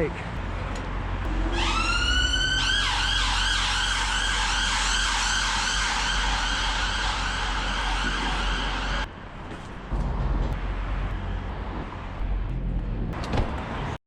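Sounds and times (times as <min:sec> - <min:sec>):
warbling siren: 0:01.2 - 0:09.1.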